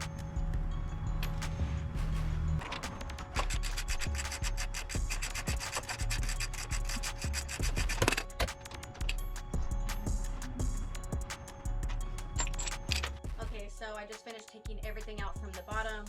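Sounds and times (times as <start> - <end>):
background music: 0.0 - 16.0
hand tool clicking and rasping: 2.6 - 13.4.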